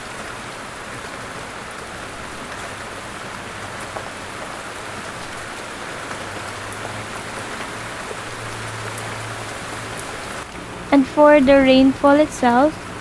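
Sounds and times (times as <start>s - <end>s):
steady rain falling: 0.0s - 13.0s
low steady hum: 10.5s - 13.0s.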